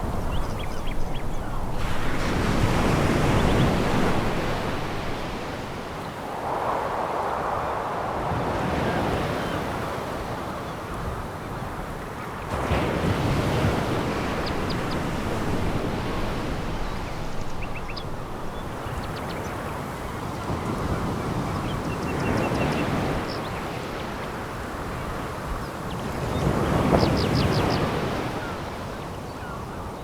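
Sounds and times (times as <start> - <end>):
waves breaking on pebble beach: 0.0 - 10.2, 12.5 - 21.9.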